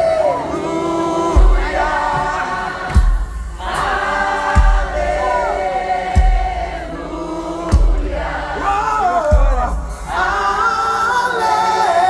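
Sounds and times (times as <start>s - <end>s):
voices singing held notes: 0.0s - 12.0s
heavy bass drum hits: 1.4s - 10.7s.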